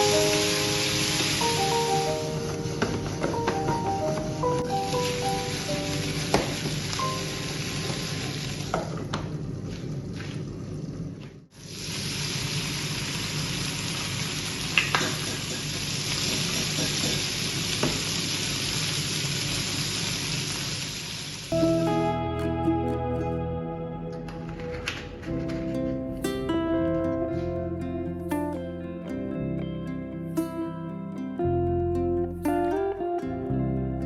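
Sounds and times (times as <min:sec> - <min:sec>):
food sizzling in a frying pan: 0:00.0 - 0:09.0, 0:11.6 - 0:21.6.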